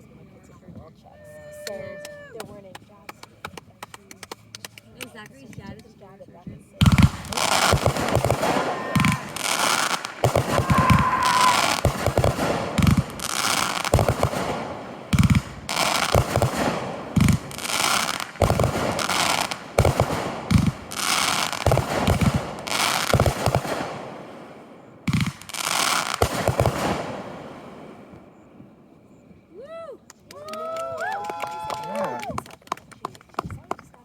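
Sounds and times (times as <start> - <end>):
fireworks bangs with crackling: 2.4 - 29.4.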